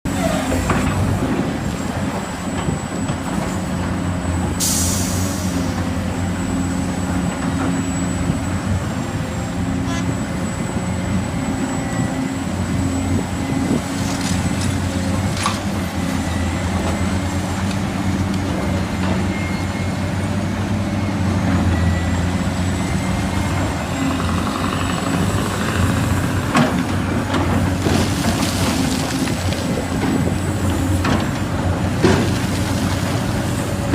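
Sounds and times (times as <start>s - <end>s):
heavy diesel engine running: 0.1s - 33.9s
air brake hiss: 4.6s - 5.6s.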